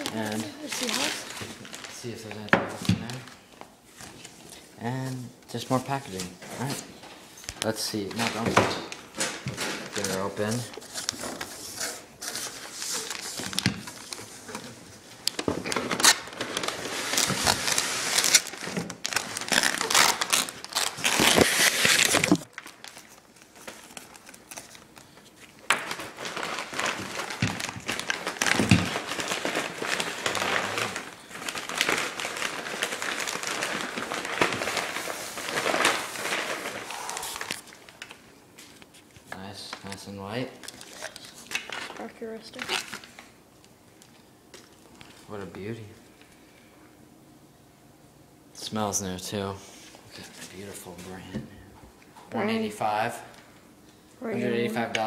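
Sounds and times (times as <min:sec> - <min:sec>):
packaging crumpled and torn: 0:00.0 - 0:03.3, 0:09.8 - 0:38.2, 0:39.8 - 0:43.3.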